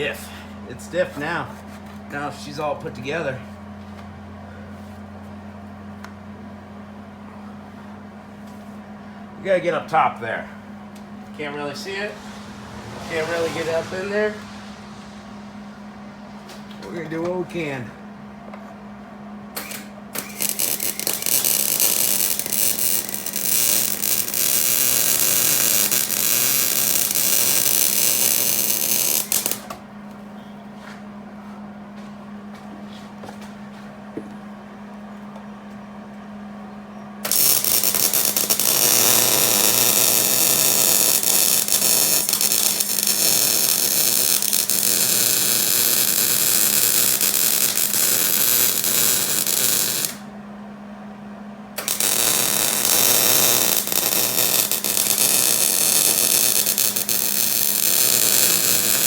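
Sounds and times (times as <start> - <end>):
welder humming: 8.5 - 30.0, 37.2 - 50.4, 51.7 - 59.0
welding arc crackling: 19.6 - 29.7, 37.2 - 50.2, 51.8 - 59.0.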